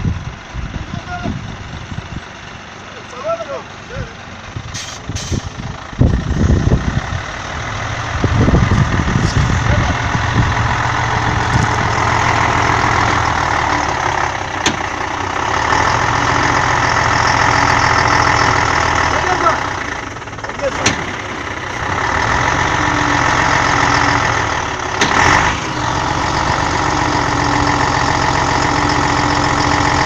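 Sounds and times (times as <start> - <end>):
diesel truck engine under load: 0.0 - 30.0.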